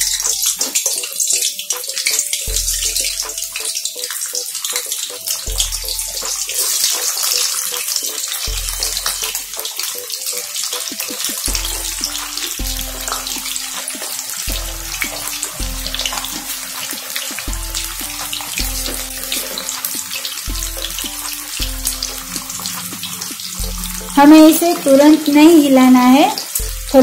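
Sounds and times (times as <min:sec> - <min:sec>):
background music with bass: 0:00.0 - 0:00.7, 0:02.5 - 0:03.7, 0:05.5 - 0:07.1, 0:08.5 - 0:09.7, 0:11.3 - 0:24.8, 0:26.6 - 0:27.0
food sizzling in hot oil: 0:00.0 - 0:27.0.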